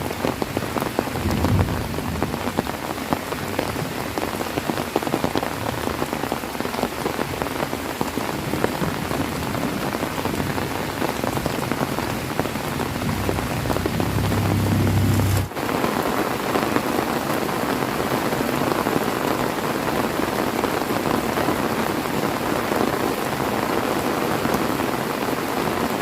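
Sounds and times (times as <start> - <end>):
heavy rain falling: 0.0 - 26.0
low rumble: 12.2 - 15.5.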